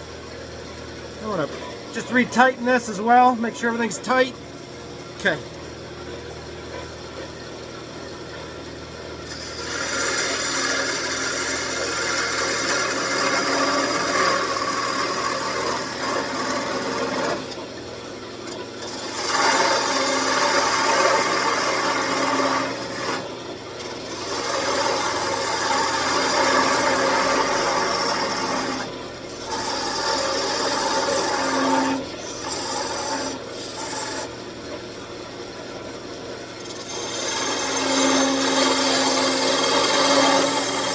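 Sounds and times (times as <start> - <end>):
tool cutting spinning wood: 1.2 - 4.4, 9.2 - 17.6, 18.5 - 34.9, 36.5 - 40.9
lathe humming: 9.2 - 17.6, 18.8 - 23.2, 23.8 - 35.3, 36.5 - 40.9.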